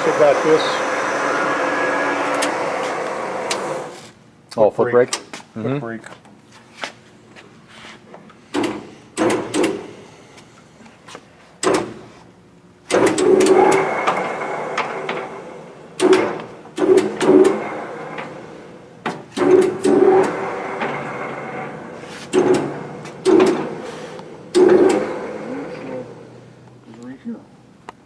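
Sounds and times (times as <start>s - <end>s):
sudden loud lathe sound: 0.0s - 4.1s, 12.9s - 26.6s
metal clunks and knocks: 8.5s - 9.9s, 11.6s - 12.1s, 16.0s - 25.2s.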